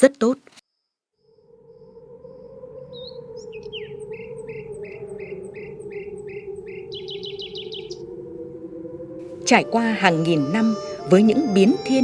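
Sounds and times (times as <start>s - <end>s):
bird chirping and trilling: 2.9s - 8.0s, 9.5s - 12.0s.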